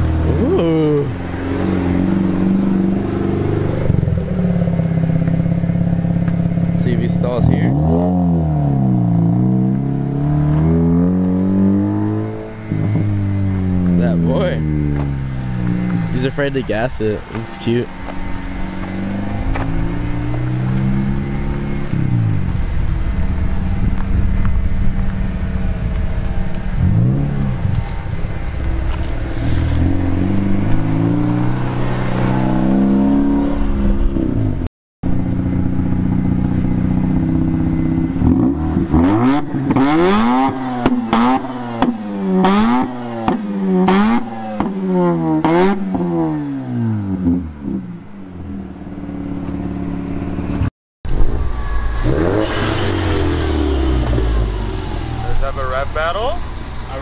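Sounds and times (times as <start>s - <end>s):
engine revving in blips: 0.0s - 22.6s, 23.5s - 57.0s
rotary engine accelerating: 0.0s - 57.0s.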